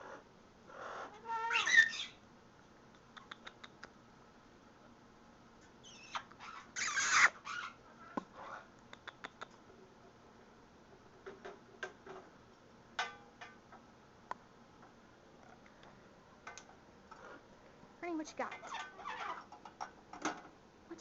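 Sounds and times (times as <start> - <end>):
parrot calling: 0.0 - 2.2, 5.8 - 9.5.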